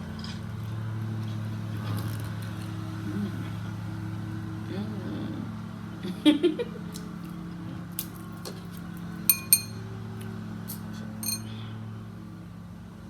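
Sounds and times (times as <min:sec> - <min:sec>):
tableware clinking: 0:09.3 - 0:09.8, 0:11.2 - 0:11.5.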